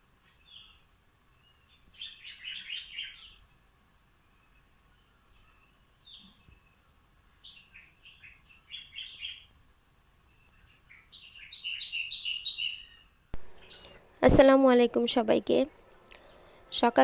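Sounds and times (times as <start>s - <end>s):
bird chirping: 0.1s - 9.6s, 10.2s - 14.0s.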